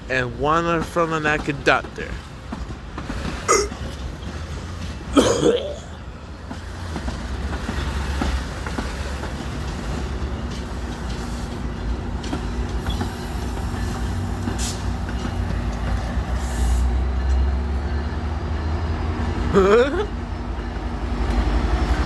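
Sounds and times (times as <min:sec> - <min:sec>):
train rumbling on rails: 0:00.0 - 0:22.0
train wheel clicks: 0:06.4 - 0:17.5.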